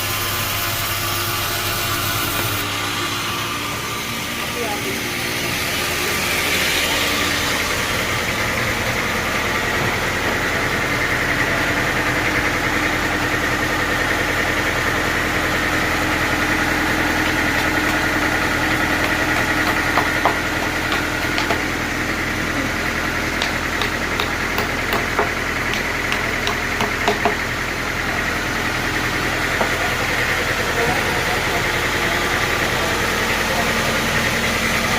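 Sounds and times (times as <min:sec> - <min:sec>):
constant machine whine: 0:00.0 - 0:34.9
sawmill machinery humming: 0:00.0 - 0:34.9
sharp clicks and knocks: 0:17.2 - 0:21.8, 0:23.4 - 0:27.4.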